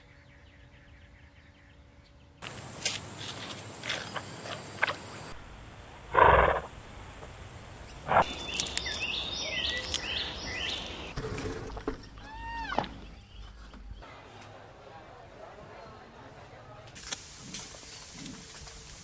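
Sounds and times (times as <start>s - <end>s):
loud animal call: 6.1s - 6.8s, 8.0s - 11.2s.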